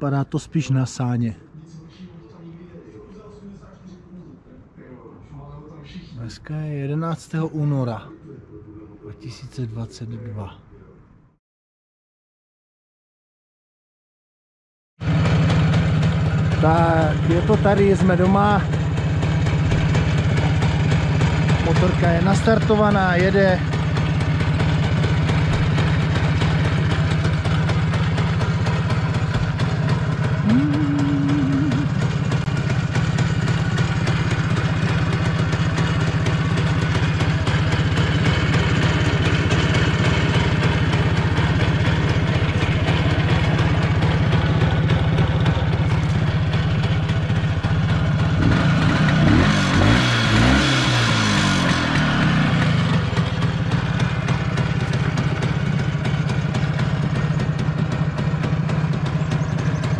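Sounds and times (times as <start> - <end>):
motorcycle engine idling and revving: 15.0 - 59.9.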